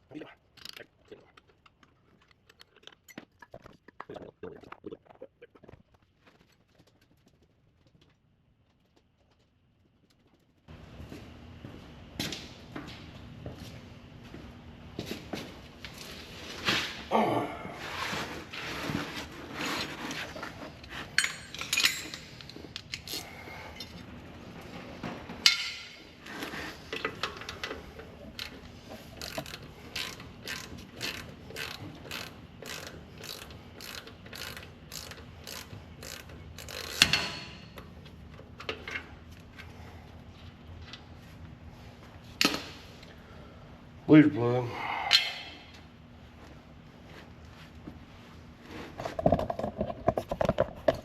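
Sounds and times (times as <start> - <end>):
ratchet wrench clicking: 29.2 - 37.4.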